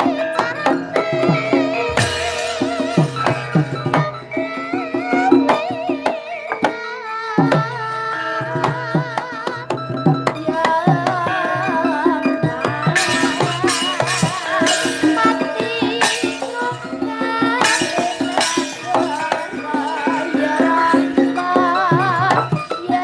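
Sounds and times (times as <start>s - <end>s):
metallophones ringing: 0.0s - 6.6s, 9.6s - 23.0s
hand drum strokes: 0.0s - 6.8s, 8.6s - 23.0s
wavering melodic line: 0.1s - 6.6s
bright noisy strokes: 1.4s - 4.6s.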